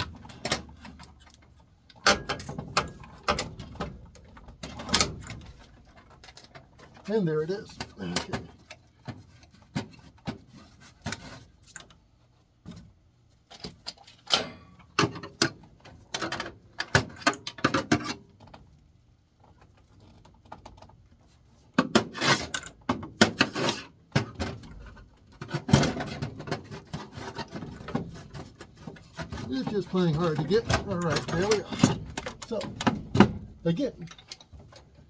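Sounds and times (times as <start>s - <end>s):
metal parts and tools clattering: 0.0s - 8.8s, 25.4s - 35.0s.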